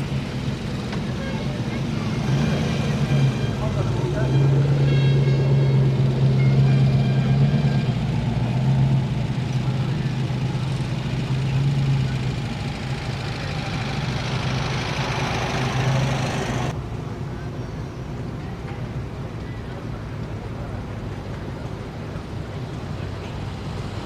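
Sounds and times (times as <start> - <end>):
car engine passing: 0.0 - 16.8.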